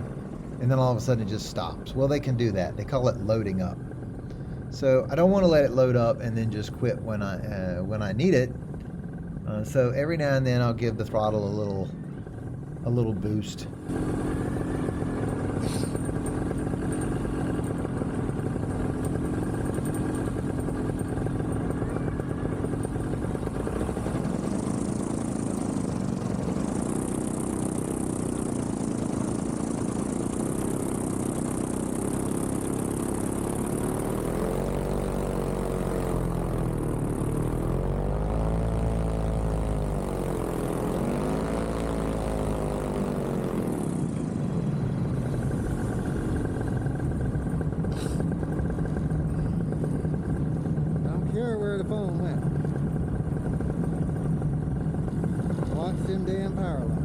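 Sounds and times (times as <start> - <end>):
paramotor engine revving: 13.7 - 49.1.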